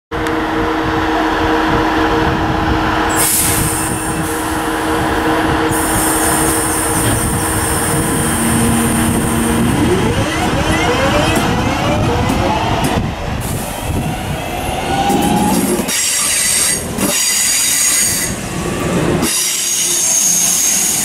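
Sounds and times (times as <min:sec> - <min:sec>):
train motor hum: 0:00.2 - 0:17.1
sharp hiss of air: 0:03.1 - 0:04.7, 0:05.7 - 0:08.4.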